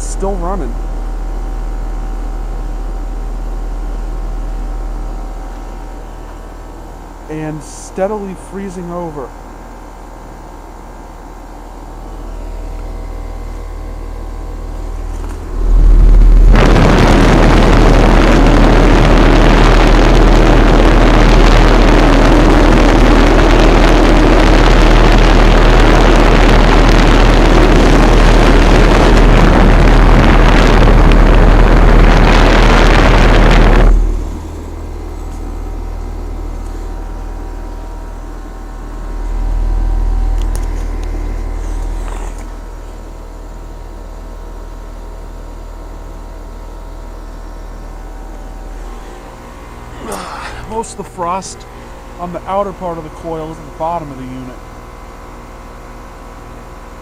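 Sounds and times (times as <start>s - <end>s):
heat pump compressor and fan hum: 0.0s - 57.0s
loud rushing noise: 15.4s - 22.8s, 27.9s - 35.2s.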